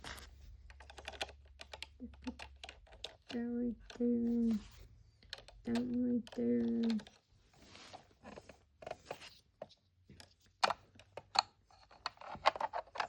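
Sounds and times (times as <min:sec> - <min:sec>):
plastic clicking and tapping: 0:00.6 - 0:04.6, 0:05.2 - 0:07.2, 0:08.2 - 0:13.0
soft rustle: 0:07.4 - 0:09.5.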